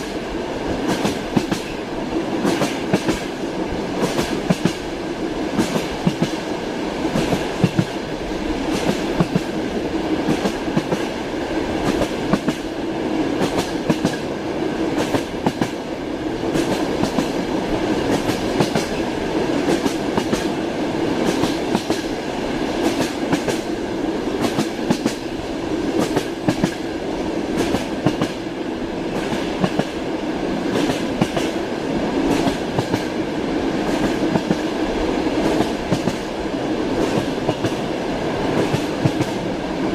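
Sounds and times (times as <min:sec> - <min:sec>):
rumble of moving train car: 0:00.0 - 0:39.9
train wheels clacking over rail joints: 0:00.8 - 0:01.8, 0:02.4 - 0:03.3, 0:04.0 - 0:04.8, 0:05.6 - 0:06.4, 0:08.7 - 0:09.6, 0:11.8 - 0:12.7, 0:13.4 - 0:14.3, 0:15.0 - 0:15.8, 0:16.5 - 0:17.4, 0:18.0 - 0:19.0, 0:19.6 - 0:20.6, 0:21.2 - 0:22.2, 0:22.8 - 0:23.7, 0:24.4 - 0:25.3, 0:25.9 - 0:26.9, 0:27.6 - 0:28.4, 0:29.1 - 0:30.0, 0:30.7 - 0:31.6, 0:32.3 - 0:33.1, 0:35.4 - 0:36.3, 0:38.5 - 0:39.4.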